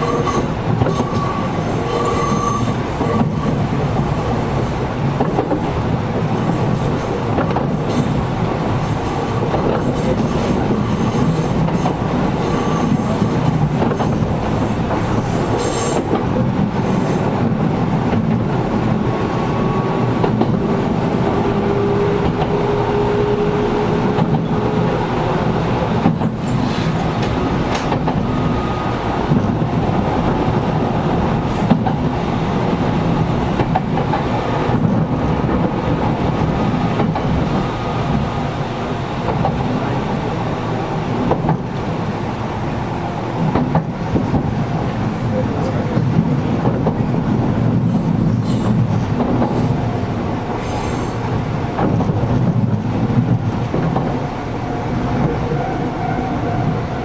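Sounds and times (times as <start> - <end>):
high wheel squeal: 0.0 - 3.3, 19.2 - 20.2, 26.0 - 29.2, 50.6 - 51.3
rail-joint clicks: 0.0 - 40.0, 40.6 - 42.1, 43.2 - 57.0
wheel-on-rail rumble: 0.0 - 57.0.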